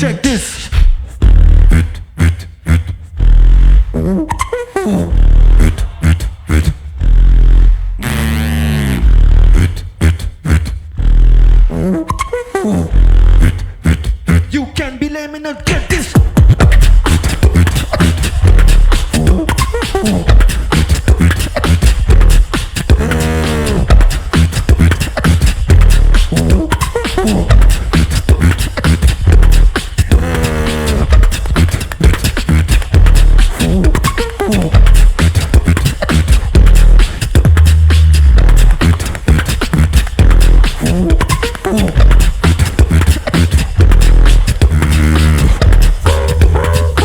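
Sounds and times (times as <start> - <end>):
beatboxing bass kicks and snares: 0.0 - 47.0
warbling sliding vocal effect: 1.4 - 14.5, 16.0 - 47.0
held buzzing vocal tone: 16.6 - 47.0.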